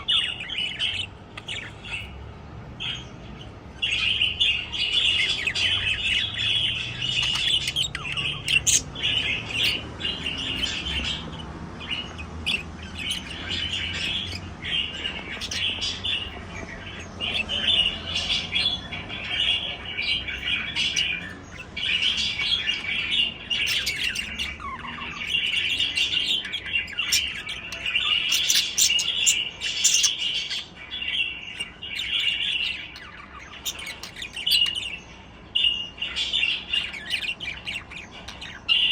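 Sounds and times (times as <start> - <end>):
budgerigars chirping and warbling: 0.0 - 38.9
sharp bird calls: 0.0 - 38.9.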